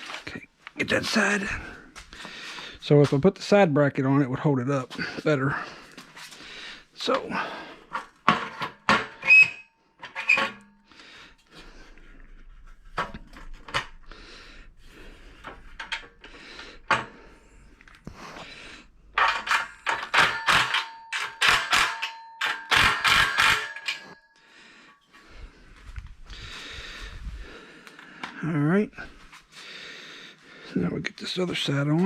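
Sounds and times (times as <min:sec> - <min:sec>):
metal parts knocking and clattering: 0:07.9 - 0:10.7, 0:15.4 - 0:17.1, 0:19.1 - 0:24.2.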